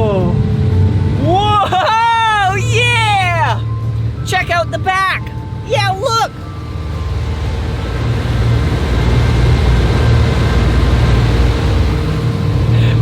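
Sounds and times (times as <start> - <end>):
loud noisy rush: 0.0 - 13.0
motorboat engine drone: 0.0 - 13.0.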